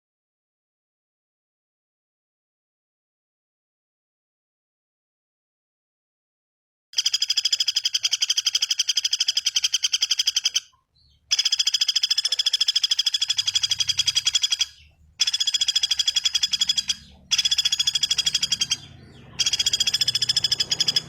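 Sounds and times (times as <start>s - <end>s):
bird trilling: 7.0s - 21.0s.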